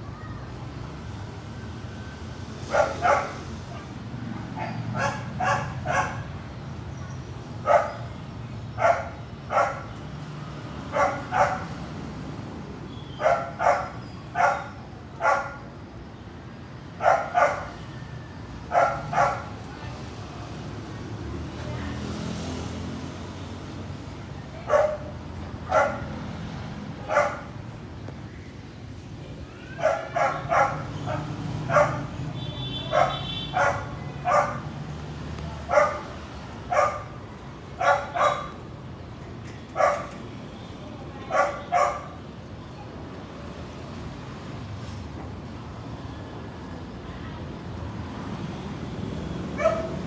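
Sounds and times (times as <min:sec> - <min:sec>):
dog barking: 0:02.7 - 0:03.8, 0:04.5 - 0:06.3, 0:07.6 - 0:08.1, 0:08.8 - 0:09.9, 0:10.9 - 0:11.8, 0:13.2 - 0:15.7, 0:17.0 - 0:17.8, 0:18.7 - 0:19.6, 0:24.6 - 0:26.2, 0:27.0 - 0:27.6, 0:29.7 - 0:34.8, 0:35.6 - 0:37.2, 0:37.8 - 0:38.6, 0:39.8 - 0:40.2, 0:41.3 - 0:42.2, 0:49.6 - 0:50.0.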